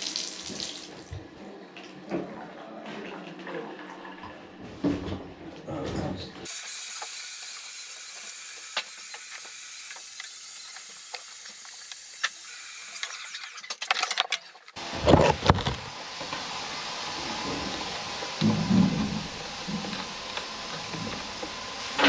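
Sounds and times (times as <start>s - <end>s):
water hissing from tap: 0.0s - 1.0s, 6.5s - 14.8s, 15.9s - 22.0s.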